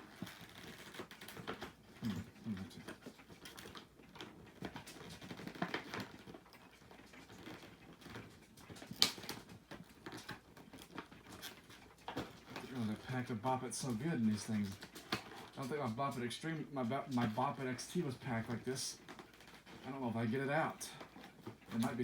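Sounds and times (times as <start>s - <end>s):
packaging rustling: 7.2s - 22.0s.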